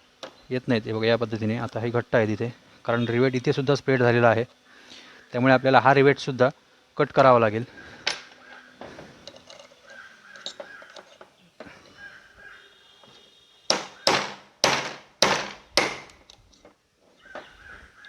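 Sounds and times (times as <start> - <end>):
faint handling noise: 7.6 - 13.5, 16.0 - 18.0.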